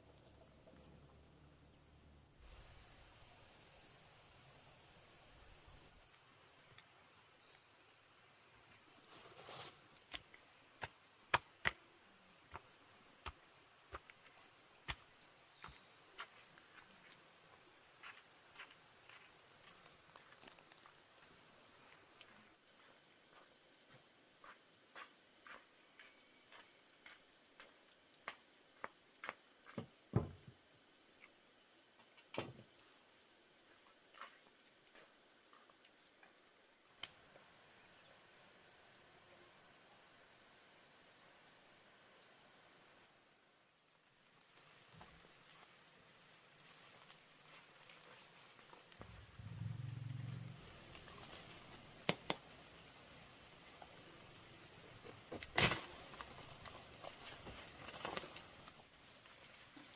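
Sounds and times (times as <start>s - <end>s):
high insect buzz: 46.6s - 59.6s
faint high whine: 46.7s - 51.9s.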